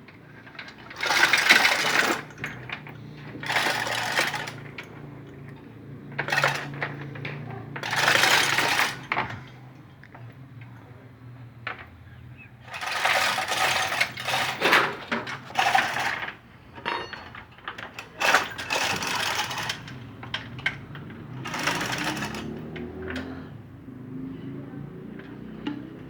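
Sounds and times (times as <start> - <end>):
metal chain rattling and clicking: 0.6 - 9.4, 12.7 - 23.3.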